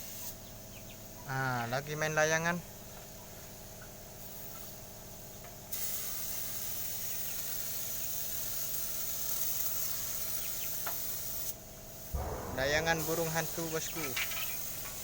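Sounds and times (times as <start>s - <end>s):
paint spray hissing: 5.7s - 12.3s.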